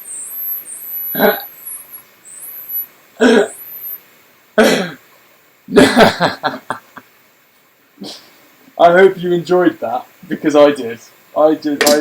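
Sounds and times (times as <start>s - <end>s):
high-pitched chirp: 0.0s - 4.1s
person coughing: 3.2s - 3.5s, 4.6s - 5.0s.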